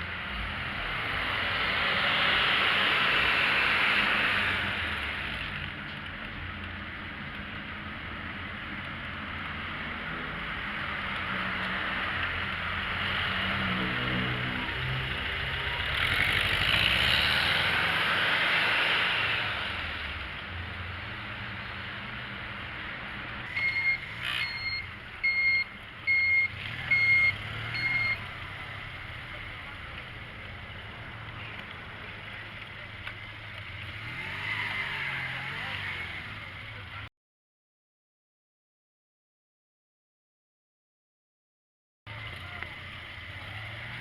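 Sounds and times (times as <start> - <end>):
traffic: 0.0 - 37.1, 42.1 - 44.0
reversing alarm beeps: 23.5 - 28.2.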